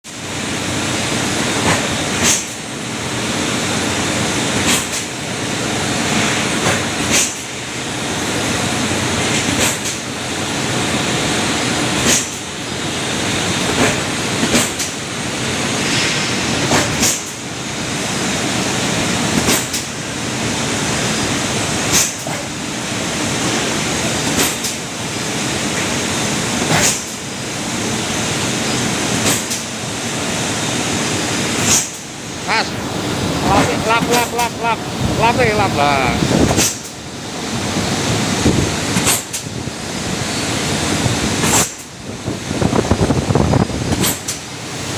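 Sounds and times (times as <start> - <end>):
machine sharp clack: 1.5 - 2.7, 4.5 - 5.2, 6.1 - 7.6, 9.2 - 10.2, 11.9 - 12.5, 13.4 - 17.6, 19.1 - 20.0, 21.8 - 22.6, 24.0 - 24.9, 26.6 - 27.3, 29.1 - 29.8, 31.5 - 32.6, 36.4 - 37.0, 38.9 - 39.5, 41.4 - 41.9, 43.9 - 44.5.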